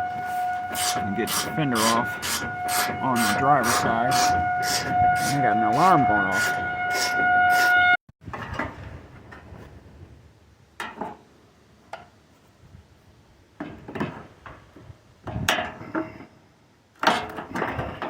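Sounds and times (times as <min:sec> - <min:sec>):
hand tools and metal parts clinking: 0:00.2 - 0:07.7.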